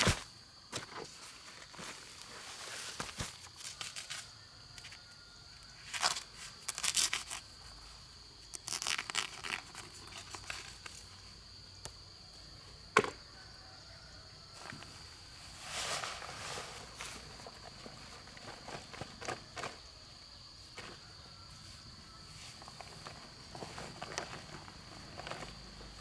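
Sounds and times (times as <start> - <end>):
scraping and rustling: 14.6 - 19.9.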